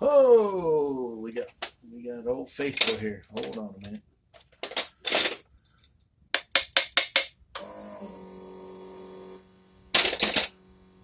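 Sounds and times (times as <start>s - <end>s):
steady hum: 7.6s - 11.0s.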